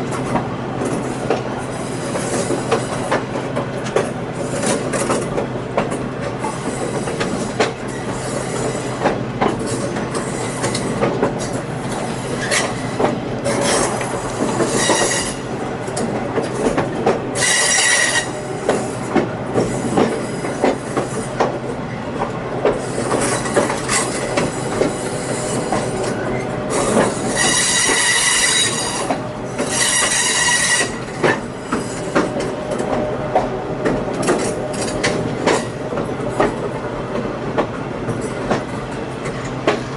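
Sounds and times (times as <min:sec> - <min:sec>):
train rolling on rails: 0:00.0 - 0:39.9
wheel flanges squealing: 0:12.2 - 0:15.4, 0:22.8 - 0:32.2.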